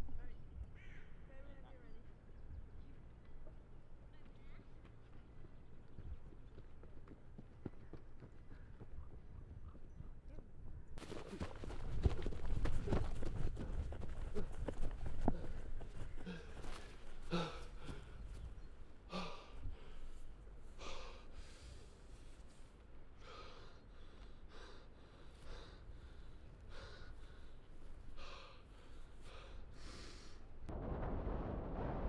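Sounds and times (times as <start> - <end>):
person breathing heavily: 14.2 - 18.3, 19.1 - 22.5, 23.1 - 30.6.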